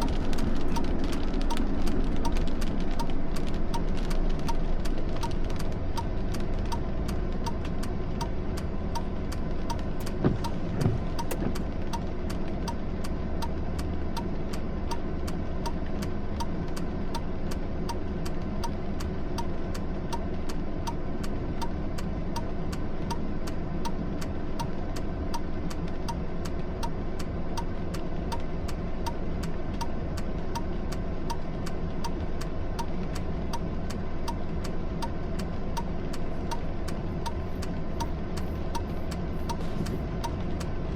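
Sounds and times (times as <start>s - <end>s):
steady ticking: 0.0s - 13.5s, 30.5s - 40.7s
vehicle engine and road rumble: 0.0s - 40.9s.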